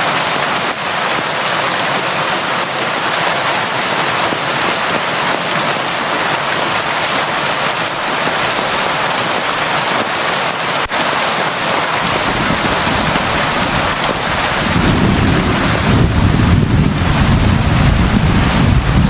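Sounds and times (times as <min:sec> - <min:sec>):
heavy rain: 0:00.0 - 0:19.0
low rumble of thunder: 0:12.1 - 0:19.0.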